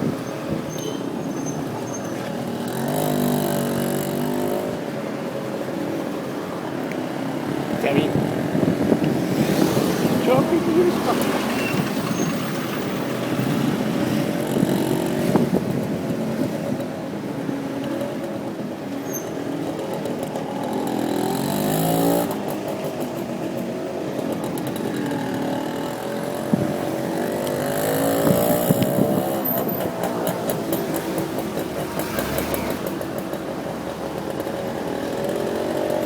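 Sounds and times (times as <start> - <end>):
city traffic: 0.0 - 36.0
motorcycle engine running: 19.6 - 36.0.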